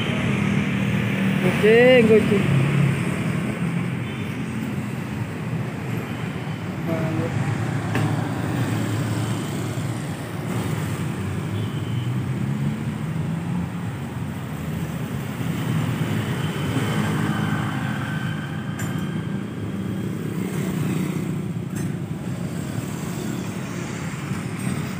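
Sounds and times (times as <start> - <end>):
road traffic noise: 0.0 - 24.9.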